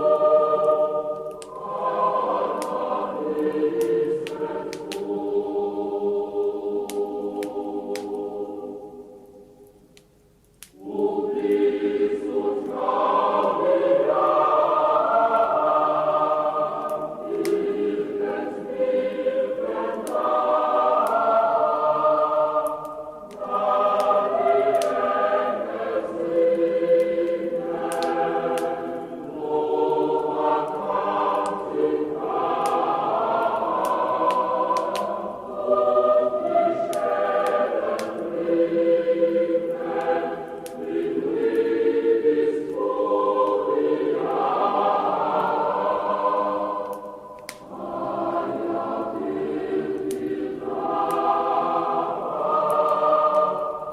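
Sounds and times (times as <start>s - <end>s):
choir singing a carol: 0.0s - 10.1s, 10.7s - 53.9s
wood fire crackling: 0.0s - 53.9s.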